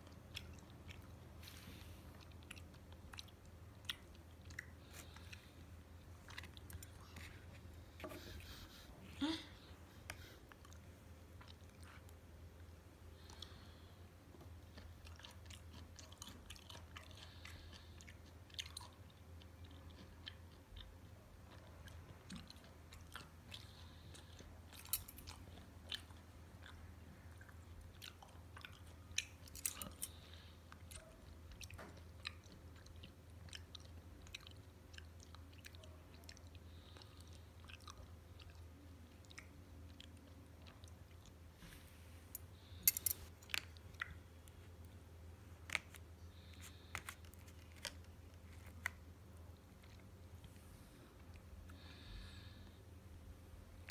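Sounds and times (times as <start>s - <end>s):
chewing with wet mouth clicks: 0.0s - 8.0s, 10.0s - 13.7s, 14.4s - 41.4s, 42.6s - 45.0s
low steady hum: 0.0s - 53.9s.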